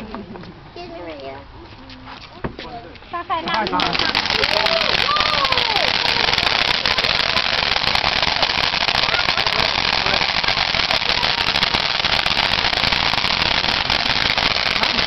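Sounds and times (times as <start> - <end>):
firework fountain crackling: 3.1 - 15.0.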